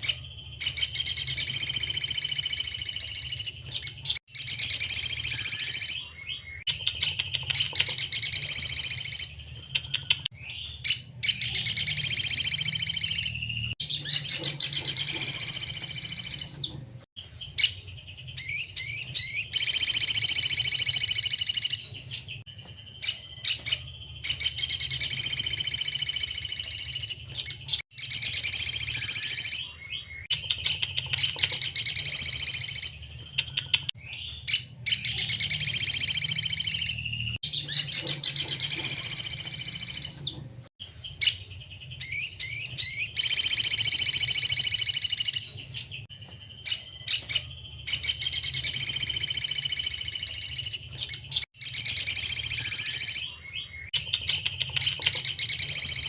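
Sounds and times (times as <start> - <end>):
bird singing rapidly: 0.0 - 56.0.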